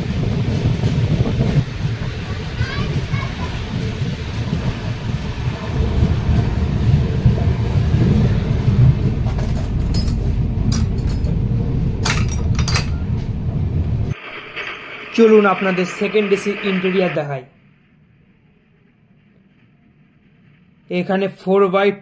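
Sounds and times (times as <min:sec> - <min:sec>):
train coach rumbling at speed: 0:00.0 - 0:14.2
metallic clinks and rattles: 0:09.5 - 0:11.4, 0:12.0 - 0:13.2.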